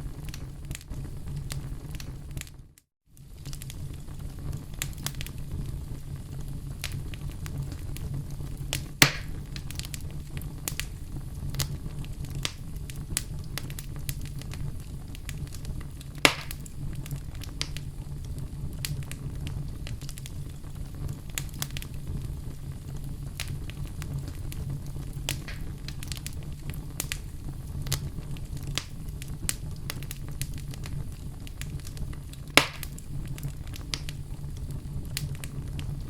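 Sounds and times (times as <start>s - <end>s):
loud pops from fire: 0.0s - 36.0s
wood fire crackling: 0.0s - 36.0s.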